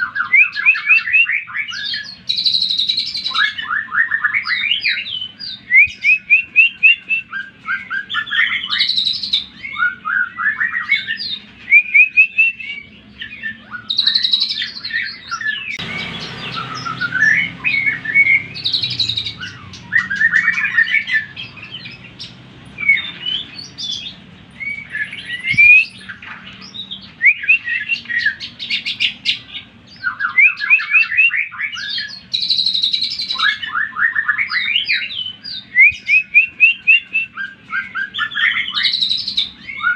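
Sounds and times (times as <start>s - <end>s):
bird singing rapid chirps and trills: 0.0s - 39.9s
low rumbling noise: 15.7s - 27.3s.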